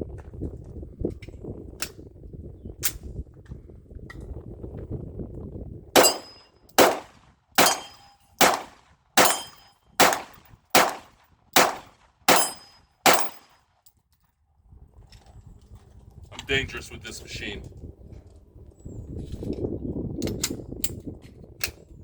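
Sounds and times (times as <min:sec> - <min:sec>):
pistol shots: 0:06.0 - 0:13.5.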